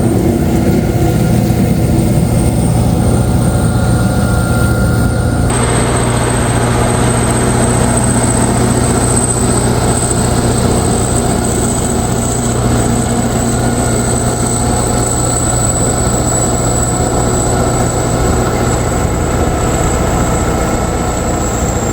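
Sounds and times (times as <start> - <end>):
high steady whistle: 0.0 - 21.9
tractor diesel engine drone: 0.0 - 21.9.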